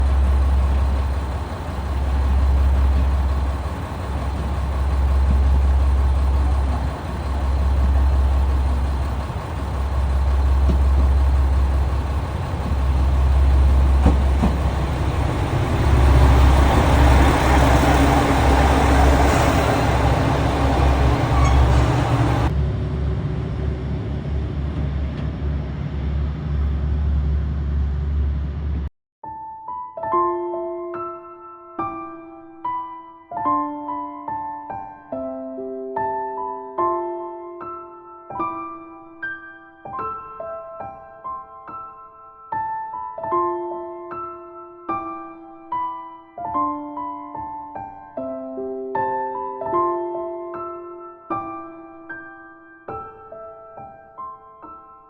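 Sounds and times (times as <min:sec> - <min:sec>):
diesel train engines rumbling: 0:00.0 - 0:28.9.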